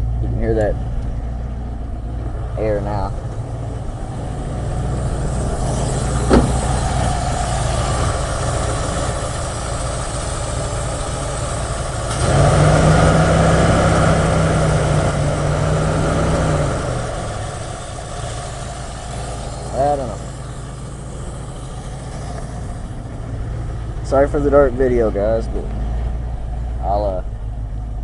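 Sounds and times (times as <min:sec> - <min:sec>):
car engine idling: 0:00.0 - 0:28.0
loud hum with air hiss: 0:03.8 - 0:23.3.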